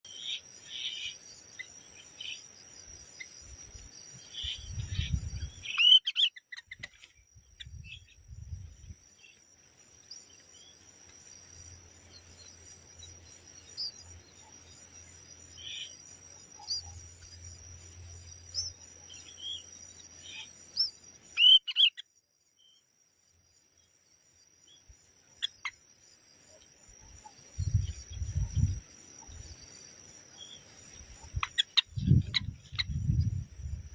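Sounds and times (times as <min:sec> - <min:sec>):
insect trill: 0:00.0 - 0:33.9
bird chirps: 0:00.1 - 0:09.4, 0:12.1 - 0:22.8, 0:30.4 - 0:33.4.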